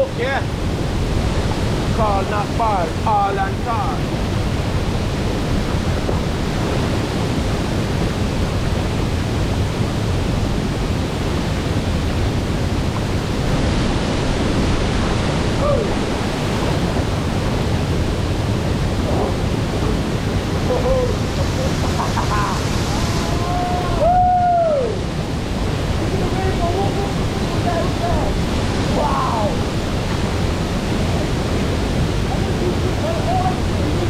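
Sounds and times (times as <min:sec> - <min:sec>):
waterfall crashing into pool: 0:00.0 - 0:34.0.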